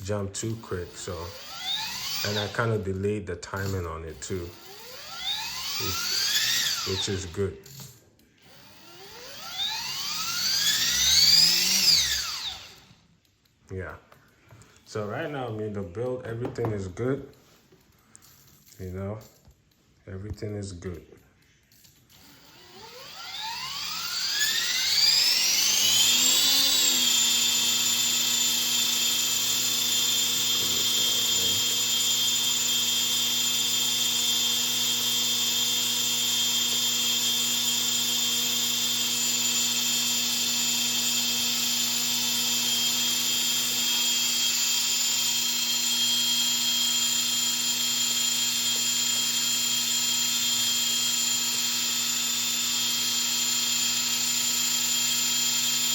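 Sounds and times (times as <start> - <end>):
electric helicopter motor whine: 0.4 - 2.7, 3.6 - 7.4, 8.4 - 13.0, 22.2 - 55.9.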